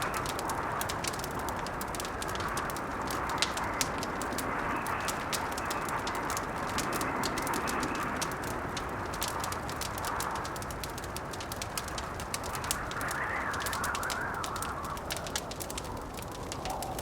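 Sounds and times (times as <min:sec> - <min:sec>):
log fire crackling: 0:00.0 - 0:17.0
wind moaning: 0:09.8 - 0:17.0.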